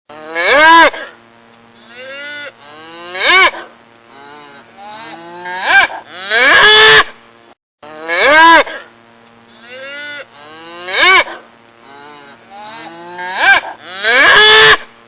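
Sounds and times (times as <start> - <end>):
cattle mooing: 1.8 - 7.0, 7.8 - 8.9, 9.5 - 14.8.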